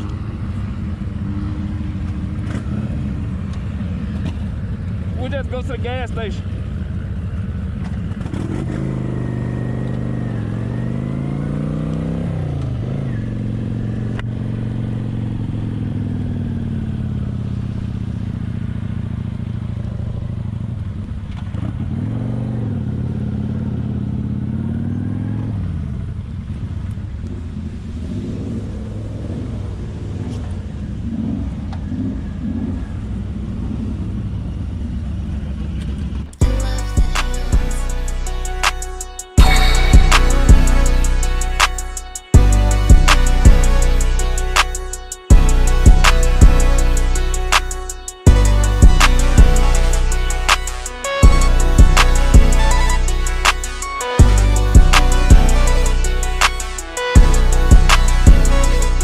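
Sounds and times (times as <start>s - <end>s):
motorcycle engine running: 0.0s - 28.0s, 39.2s - 41.5s.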